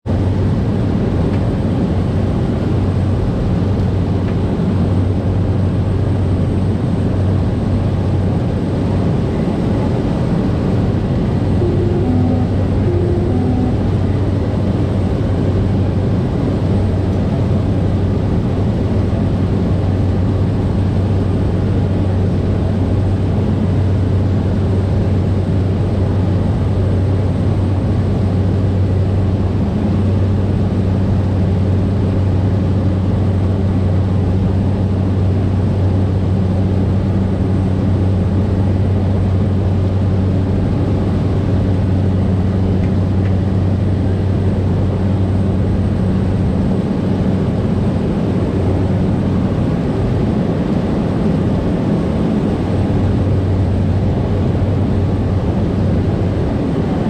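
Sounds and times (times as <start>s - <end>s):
turboprop plane droning in flight: 0.0s - 57.0s
high steady tone: 11.3s - 15.0s.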